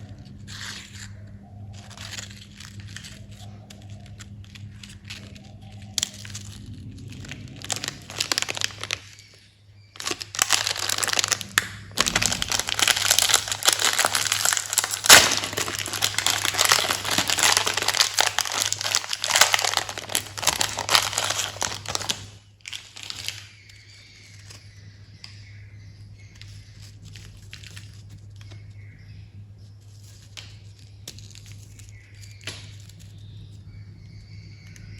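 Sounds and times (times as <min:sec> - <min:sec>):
candy wrappers crinkling: 0:00.0 - 0:24.6, 0:26.6 - 0:28.6
steady low hum: 0:00.0 - 0:34.9.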